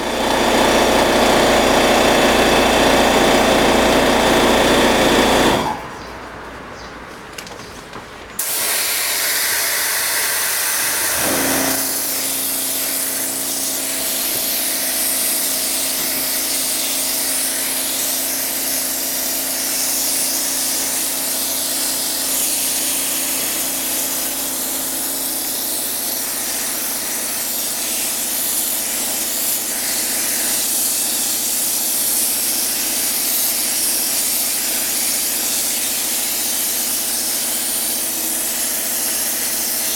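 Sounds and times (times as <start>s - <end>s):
pressure washer water spray: 8.4s - 39.9s.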